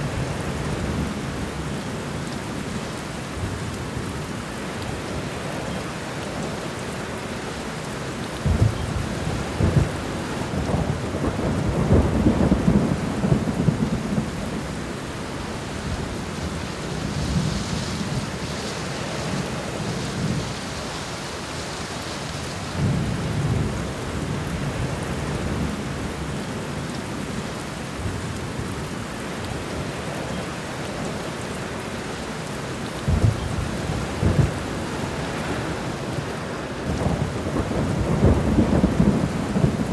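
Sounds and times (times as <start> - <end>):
steady rain: 0.0 - 39.9
rolling thunder: 8.4 - 20.8, 33.0 - 39.9
thunder clap: 33.1 - 34.9, 36.9 - 39.9.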